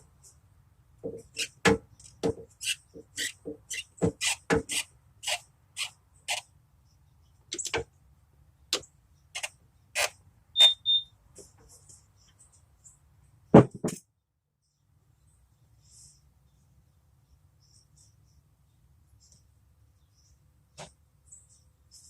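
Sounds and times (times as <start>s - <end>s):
short high ringing beeps: 10.6s - 11.1s.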